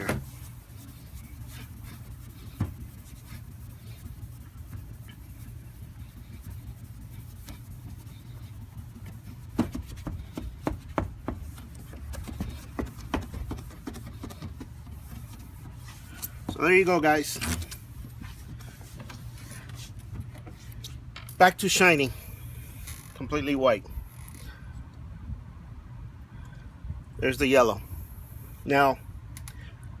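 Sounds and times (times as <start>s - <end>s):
cloth rubbing on plastic: 0.0s - 20.2s.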